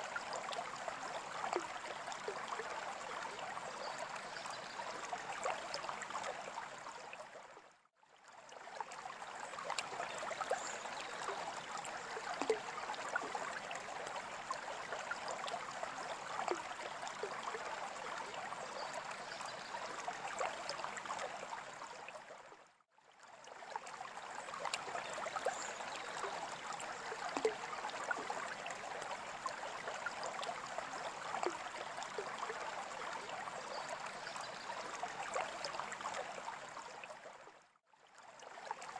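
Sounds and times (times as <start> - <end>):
water trickling and bubbling: 0.0 - 38.9
small droplet ticks: 9.6 - 12.7, 24.6 - 28.3.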